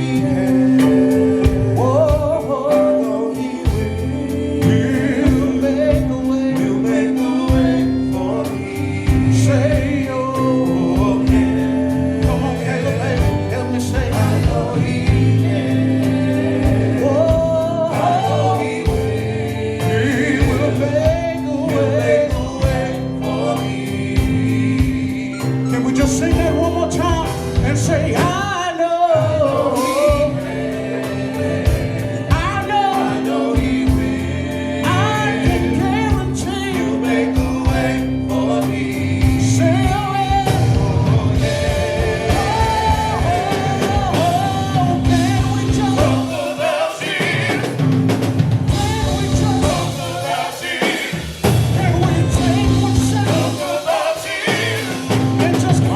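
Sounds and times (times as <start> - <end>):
drums: 0.0 - 55.9
gospel band playing: 0.0 - 55.9.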